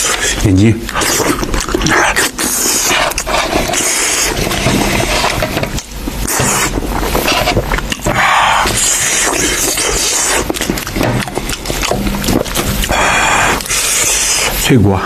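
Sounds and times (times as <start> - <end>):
wet chewing and mouth smacking: 0.0 - 14.7.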